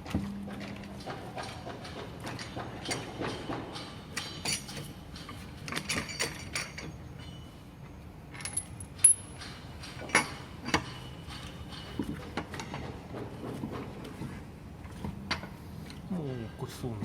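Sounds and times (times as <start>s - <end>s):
metal wheel bolts clinking: 2.3s - 7.6s, 8.3s - 12.9s.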